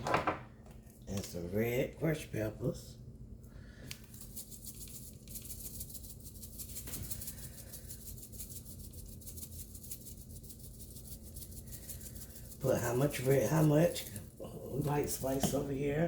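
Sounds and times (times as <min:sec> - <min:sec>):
pepper flakes rattling in shaker: 0:04.0 - 0:15.6.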